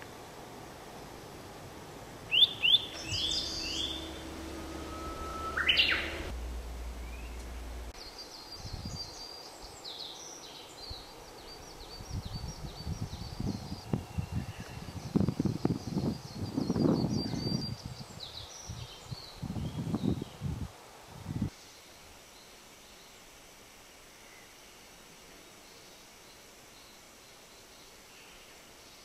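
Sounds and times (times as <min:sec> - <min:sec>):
down-slurred bird whistles: 0:02.3 - 0:06.3
fast run of high bird notes: 0:02.3 - 0:07.9
rising bird whistle: 0:02.3 - 0:07.9.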